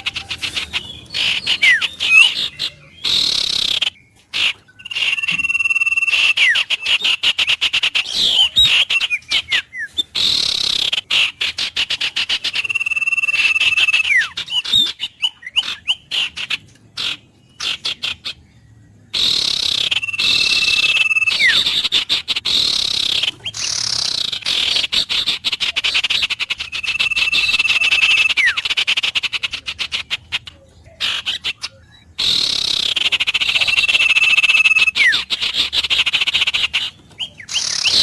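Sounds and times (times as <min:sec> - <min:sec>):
rapidly pulsing animal calls: 0:00.0 - 0:18.4, 0:19.1 - 0:38.0
bird whistle gliding down: 0:04.8 - 0:06.6, 0:12.6 - 0:14.3, 0:19.2 - 0:21.7, 0:26.7 - 0:28.6, 0:33.5 - 0:35.2.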